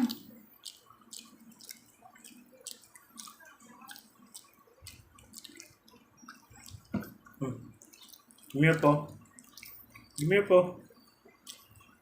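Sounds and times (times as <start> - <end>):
food being chewed: 0.0 - 12.0.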